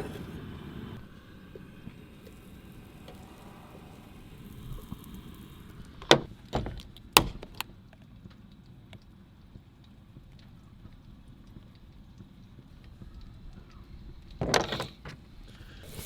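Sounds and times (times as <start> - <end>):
sharp knocks: 6.0 - 7.6.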